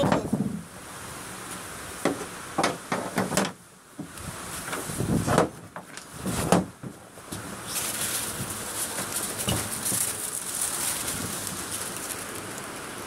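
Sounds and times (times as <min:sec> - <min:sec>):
knocks and clacks on a boat: 0:02.0 - 0:04.1, 0:04.7 - 0:07.0.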